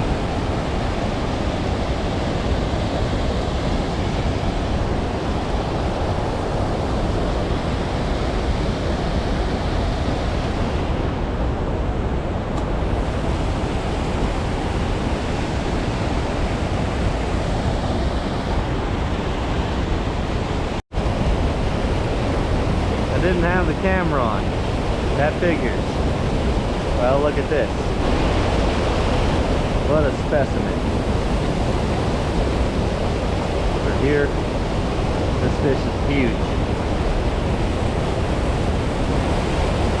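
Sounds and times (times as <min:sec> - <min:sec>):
wind on microphone: 0:00.0 - 0:40.0
creek water rushing: 0:12.4 - 0:40.0.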